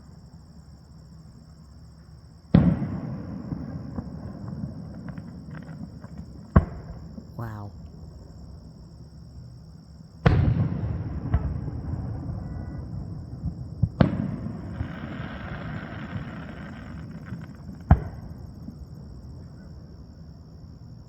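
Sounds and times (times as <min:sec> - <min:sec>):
crackling fireworks shower: 0:02.5 - 0:06.6, 0:10.2 - 0:19.1
fireworks booming: 0:10.2 - 0:18.3.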